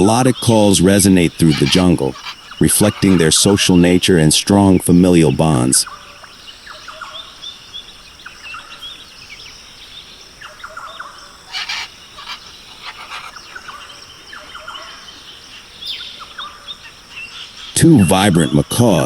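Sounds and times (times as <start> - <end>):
harsh rasping bird call: 0.0 - 4.3, 11.4 - 13.9
high insect drone: 0.0 - 19.0
small birds chirping: 0.0 - 19.0.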